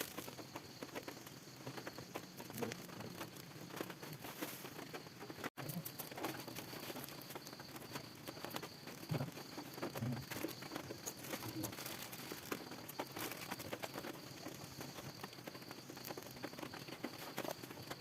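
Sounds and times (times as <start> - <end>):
rain pattering in forest: 0.0 - 18.0.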